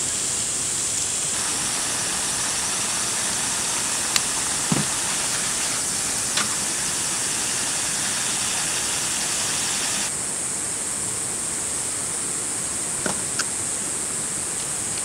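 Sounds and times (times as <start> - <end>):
gas burner hissing: 0.0 - 10.1
food sizzling in a frying pan: 1.4 - 10.1.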